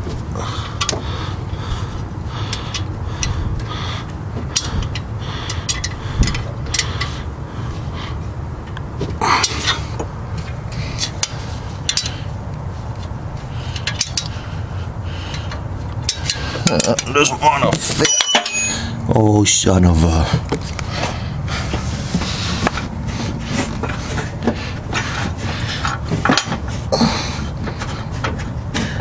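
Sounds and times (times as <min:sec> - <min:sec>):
steady low rumble: 0:00.0 - 0:29.0
wrench clinking on bolts: 0:17.9 - 0:18.9.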